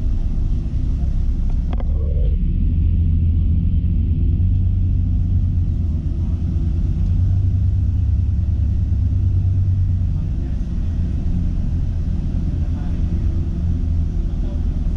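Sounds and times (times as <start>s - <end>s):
airliner cabin low rumble: 0.0s - 14.9s.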